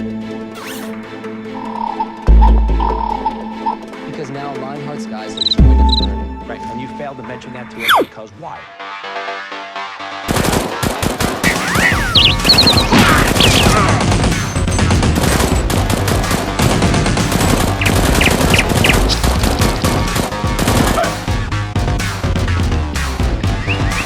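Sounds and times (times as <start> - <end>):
background music: 0.0 - 24.0
automatic gunfire: 10.3 - 21.2.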